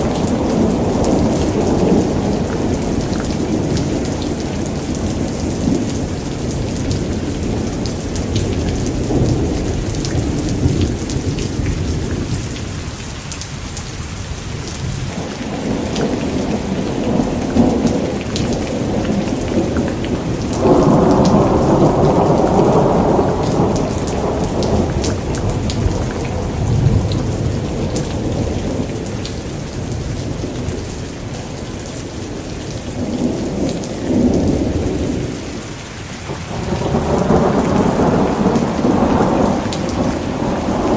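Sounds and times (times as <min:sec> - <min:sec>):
steady rain: 0:00.0 - 0:40.9
thunder rolling: 0:15.0 - 0:29.2, 0:36.3 - 0:40.9.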